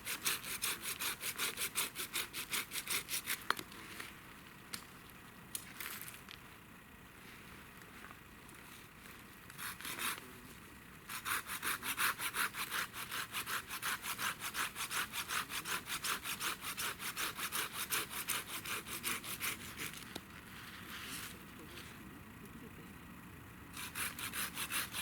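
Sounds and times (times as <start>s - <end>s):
hand saw cutting wood: 0.0s - 3.5s, 9.5s - 10.2s, 11.1s - 20.0s, 23.8s - 25.0s.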